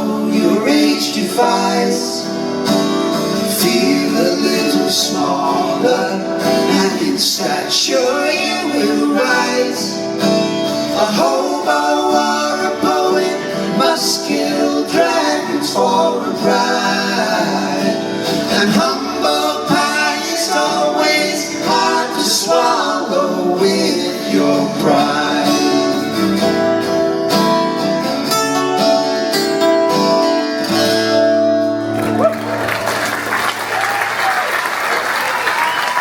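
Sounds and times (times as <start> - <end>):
person singing: 0.0 - 2.5, 3.4 - 26.7
acoustic guitar folk song: 0.0 - 33.3.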